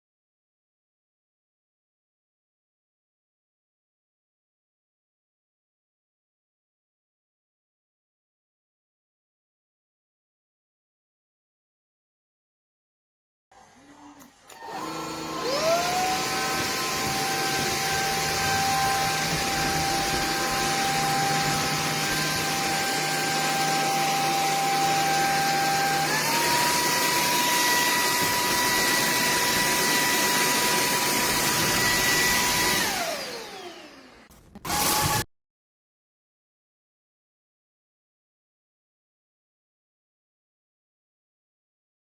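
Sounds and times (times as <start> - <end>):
stick vacuum motor whine: 13.8 - 35.3.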